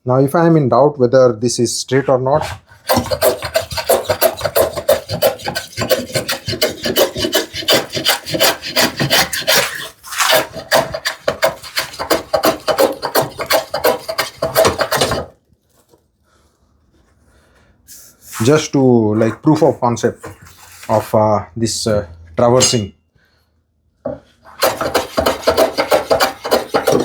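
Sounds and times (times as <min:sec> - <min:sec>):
hand plane rasping on wood: 0:02.8 - 0:15.3, 0:24.5 - 0:27.0.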